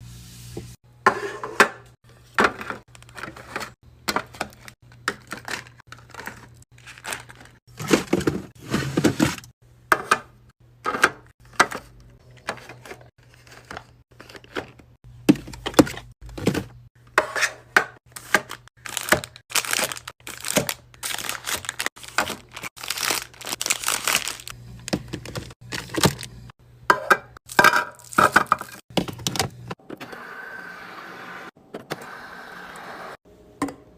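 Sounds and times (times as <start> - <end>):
fridge low hum: 0.0 - 17.2, 17.8 - 30.5
plastic packaging crinkling and tearing: 5.4 - 7.6, 18.1 - 26.4
items knocking as set down: 7.7 - 11.9, 14.5 - 19.3, 24.8 - 26.3.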